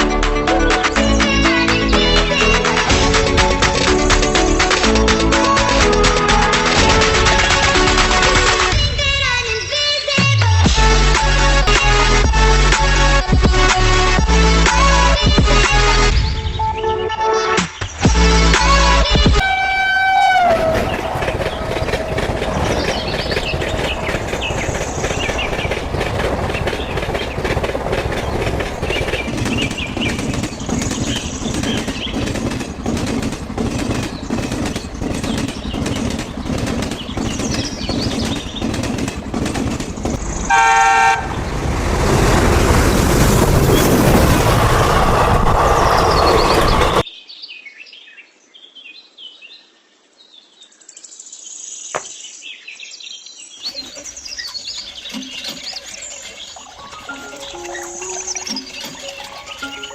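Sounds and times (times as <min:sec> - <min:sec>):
train rumbling past: 0:01.2 - 0:09.4, 0:18.4 - 0:47.0, 0:53.9 - 0:59.9
train horn blast: 0:19.4 - 0:22.3, 0:40.4 - 0:41.5
train wheels clacking: 0:20.4 - 0:41.2, 0:57.0 - 0:59.9
chirping insects or birds: 0:46.0 - 0:59.9.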